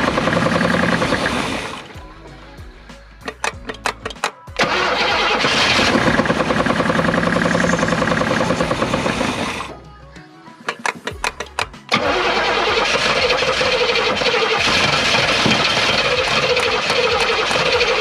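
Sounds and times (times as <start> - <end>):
starter motor cranking: 0.0 - 2.0, 3.3 - 9.8, 10.7 - 18.0
car engine starting and running: 0.0 - 9.8, 10.8 - 18.0.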